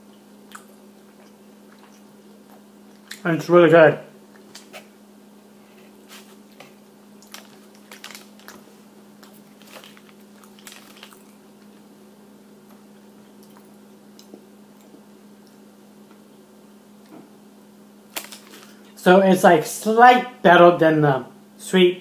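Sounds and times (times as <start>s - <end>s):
person chewing food: 0.0s - 3.2s, 4.2s - 16.3s
steady low hum: 0.0s - 22.0s.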